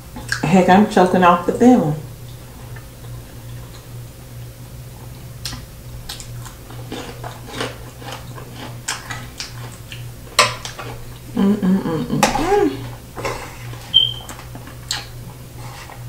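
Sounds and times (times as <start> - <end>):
steady low hum: 0.0 - 16.0
chewing with wet mouth clicks: 0.2 - 0.5, 2.2 - 4.0, 5.0 - 11.3, 13.7 - 15.4.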